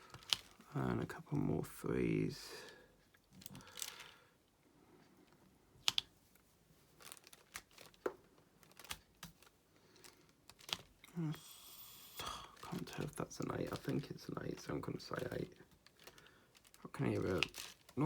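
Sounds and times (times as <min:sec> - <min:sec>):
plastic crinkling: 0:00.0 - 0:00.7, 0:03.3 - 0:04.2, 0:05.8 - 0:11.1, 0:12.3 - 0:18.0.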